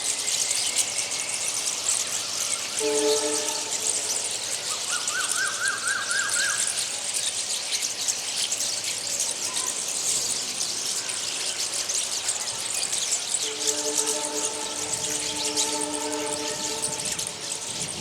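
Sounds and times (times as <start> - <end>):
small birds chirping: 0.0 - 18.0
train horn: 2.7 - 4.7, 13.4 - 18.0
rising and falling bird notes: 2.8 - 4.5, 13.4 - 18.0.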